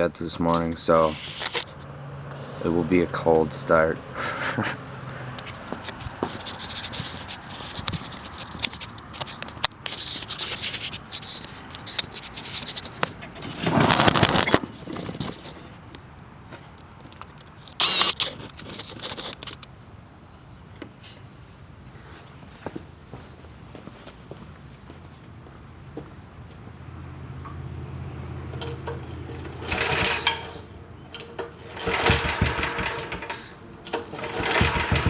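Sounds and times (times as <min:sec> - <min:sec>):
scraping and clicking: 0:01.0 - 0:02.4, 0:05.4 - 0:15.7, 0:17.1 - 0:19.7
small engine pull-starter pulls: 0:17.7 - 0:19.5, 0:28.5 - 0:35.0.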